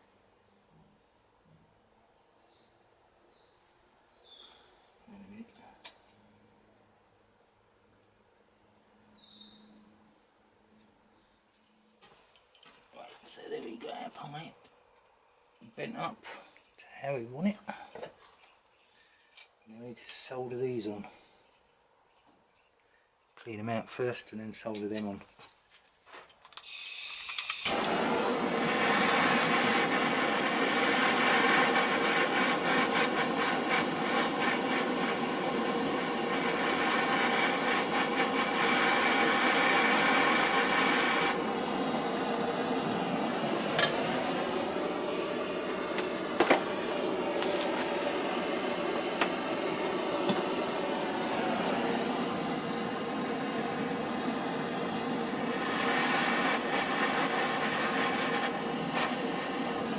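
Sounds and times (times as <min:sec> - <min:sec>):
gas blowtorch roaring: 0:26.7 - 0:59.9.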